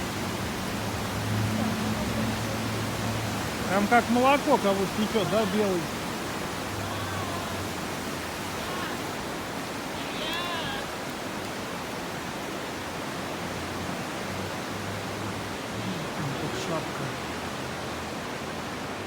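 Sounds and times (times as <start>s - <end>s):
waterfall rushing: 0.0s - 19.0s
faint voices: 1.5s - 11.0s, 15.6s - 17.4s.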